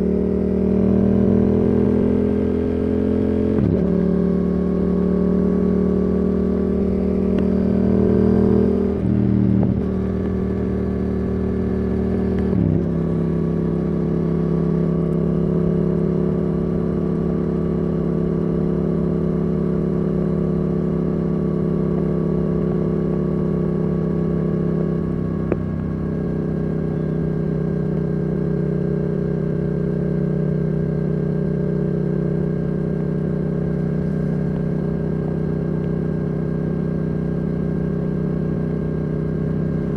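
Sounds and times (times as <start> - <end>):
motorcycle engine at steady revs: 0.0 - 39.9.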